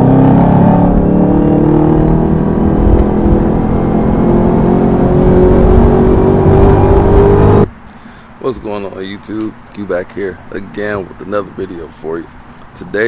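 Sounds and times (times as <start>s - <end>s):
car engine running hard: 0.0s - 7.7s.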